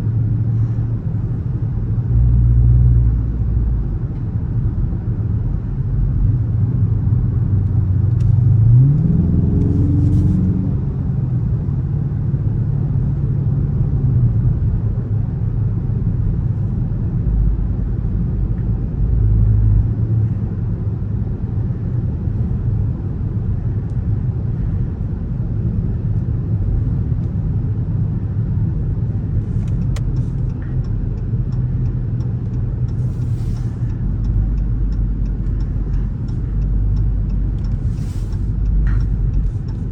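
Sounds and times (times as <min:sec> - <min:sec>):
car engine accelerating: 0:07.7 - 0:11.3, 0:28.6 - 0:39.9.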